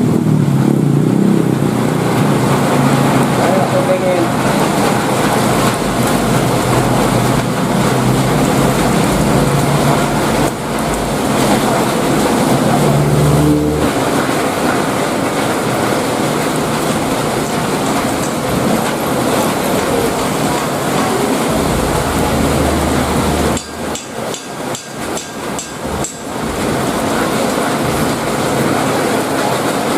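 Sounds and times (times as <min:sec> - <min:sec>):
heavy rain pouring: 0:00.0 - 0:29.9
low hum: 0:21.0 - 0:24.3.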